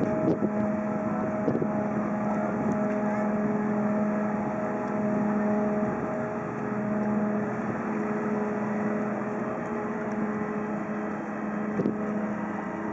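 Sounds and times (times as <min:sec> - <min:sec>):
engine drone: 0:00.0 - 0:12.9
high steady tone: 0:00.0 - 0:12.9.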